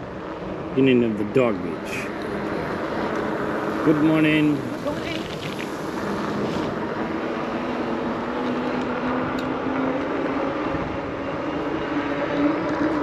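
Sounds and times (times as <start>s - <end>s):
engine drone: 0.0s - 13.0s
rush of moving air: 3.1s - 13.0s.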